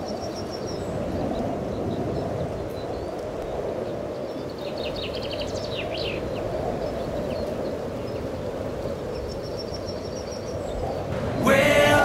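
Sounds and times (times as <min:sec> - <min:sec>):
small birds chirping: 0:00.0 - 0:12.0
steady rushing noise: 0:11.0 - 0:12.0.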